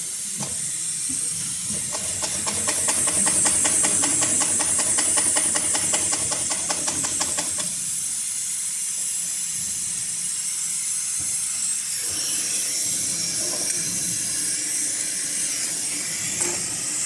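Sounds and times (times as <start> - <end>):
sewing machine stitching: 1.7 - 7.8.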